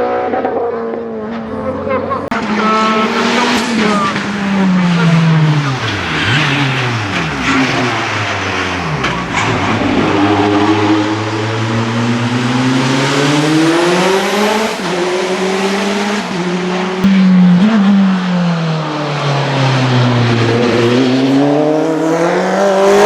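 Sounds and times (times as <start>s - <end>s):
race car engine accelerating: 0.0s - 23.0s.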